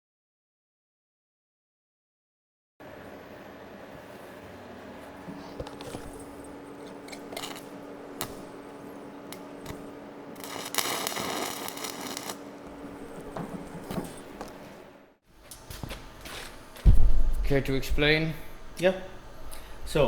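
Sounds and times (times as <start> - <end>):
shop hum: 2.8 - 20.0
loud hiss: 10.4 - 12.4.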